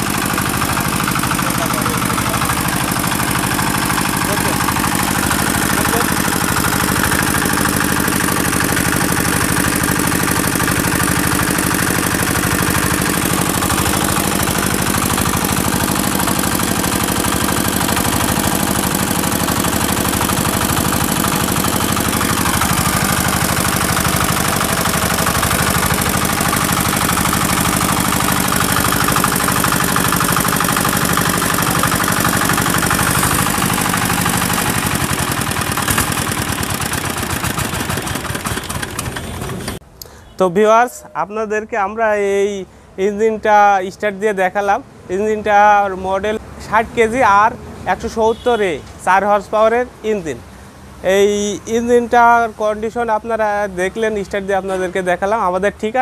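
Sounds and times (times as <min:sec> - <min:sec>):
diesel engine running: 0:00.0 - 0:39.8.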